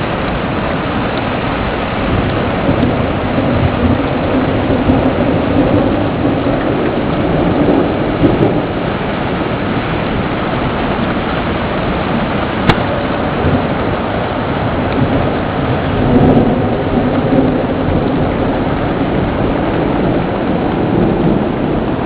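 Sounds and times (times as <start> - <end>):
steady rain: 0.0 - 22.0
thunder rumbling: 0.0 - 22.0.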